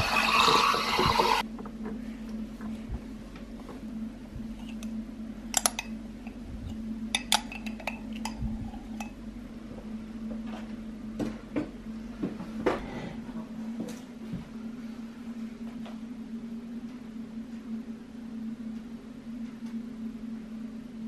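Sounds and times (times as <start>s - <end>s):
appliance humming: 0.0s - 21.0s.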